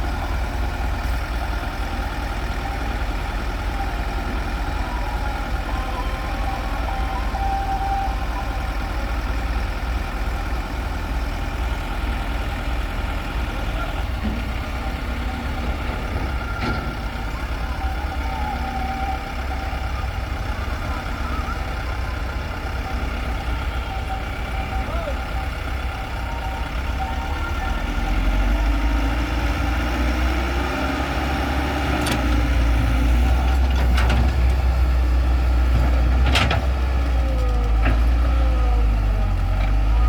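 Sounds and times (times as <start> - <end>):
heavy diesel machinery rumbling: 0.0 - 40.0.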